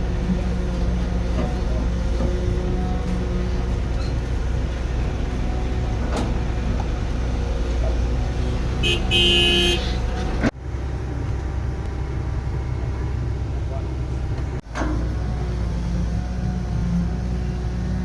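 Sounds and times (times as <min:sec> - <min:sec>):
diesel engine running: 0:00.0 - 0:18.0
vehicle horn toot: 0:08.8 - 0:10.0.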